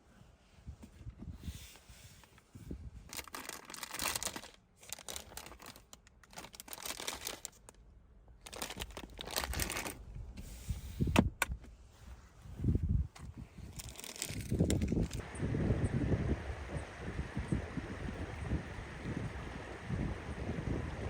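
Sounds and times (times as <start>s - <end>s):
rustling and crinkling: 0.0s - 15.2s.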